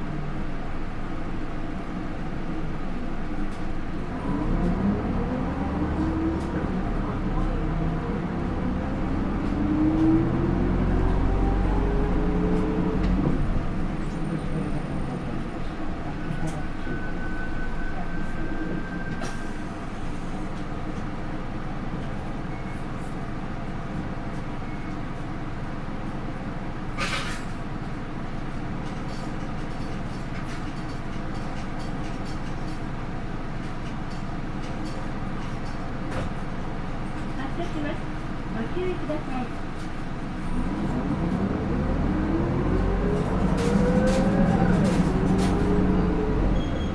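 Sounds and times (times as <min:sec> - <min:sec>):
bus diesel engine: 0:00.0 - 0:46.9
road noise: 0:04.0 - 0:21.0, 0:37.0 - 0:46.9.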